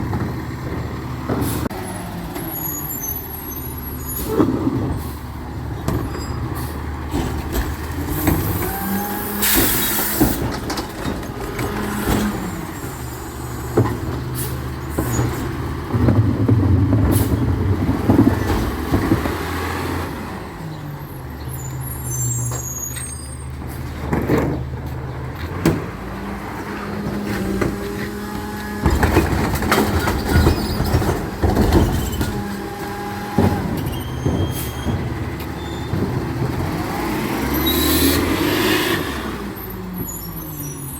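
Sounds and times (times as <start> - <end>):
truck engine revving: 23.6 - 39.8.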